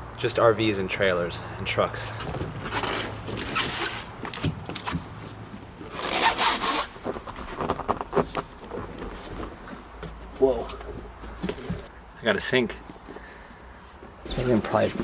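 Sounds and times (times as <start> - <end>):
rustling and scraping of handling: 2.1 - 15.0
zip-like rasp: 5.9 - 7.0.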